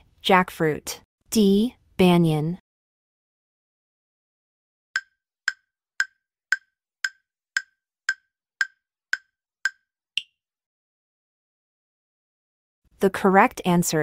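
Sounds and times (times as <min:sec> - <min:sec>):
wood-block timer ticks: 0:05.0 - 0:10.3.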